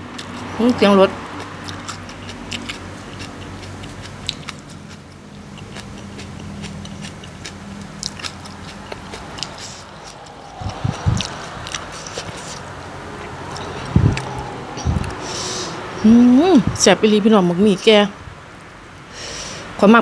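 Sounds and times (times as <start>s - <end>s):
vehicle engine hum: 0.0s - 19.1s
person chewing with wet mouth clicks: 1.4s - 12.6s.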